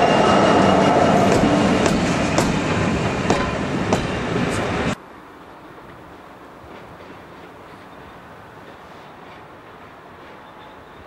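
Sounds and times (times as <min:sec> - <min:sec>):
distant train rumble: 0:00.0 - 0:11.0
train wheels clicking over joints: 0:00.8 - 0:04.7.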